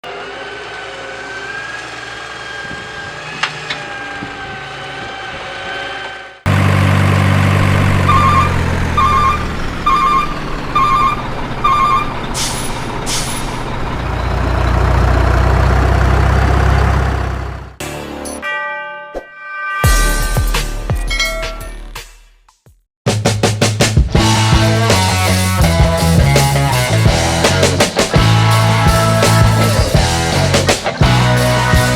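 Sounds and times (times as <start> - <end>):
truck engine: 0.0 - 18.4, 24.0 - 31.9
reversing alarm beeping: 8.0 - 12.6
air brake hisses: 12.3 - 13.6.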